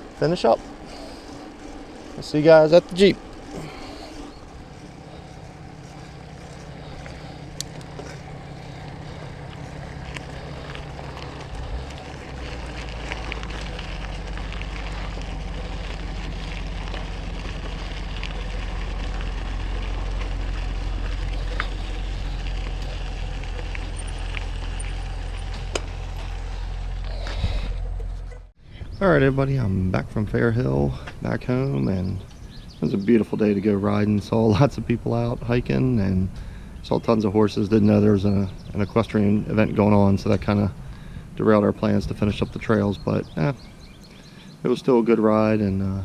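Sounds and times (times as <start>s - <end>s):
light bike clicks: 0.0s - 27.4s
bike tyre noise: 0.0s - 46.0s.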